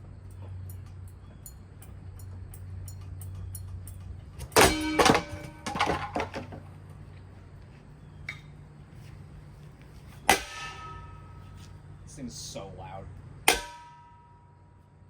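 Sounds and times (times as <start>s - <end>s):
ceiling fan humming: 0.0s - 15.0s
metallic clangs: 0.6s - 6.7s, 10.3s - 11.7s, 13.5s - 14.8s
clattering hits: 2.8s - 6.7s.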